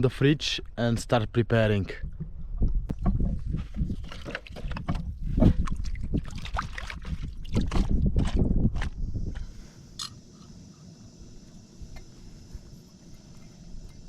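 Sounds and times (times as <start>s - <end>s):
handling knocks and rustles: 2.2s - 5.8s
water sloshing and splashing: 3.1s - 8.9s.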